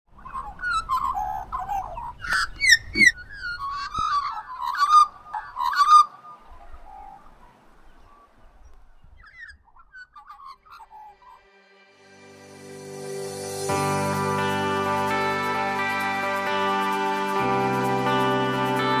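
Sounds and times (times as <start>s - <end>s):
bird warbling calls: 0.1s - 11.4s.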